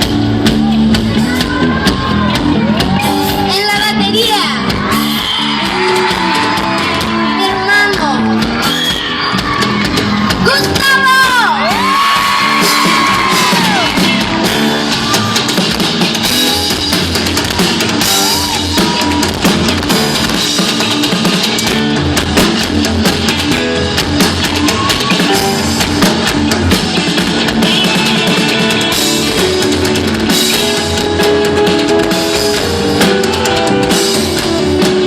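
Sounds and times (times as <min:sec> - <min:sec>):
drum kit beat: 0:00.0 - 0:35.0
electric guitar: 0:00.0 - 0:35.0
high yells: 0:08.6 - 0:15.5, 0:24.4 - 0:25.5.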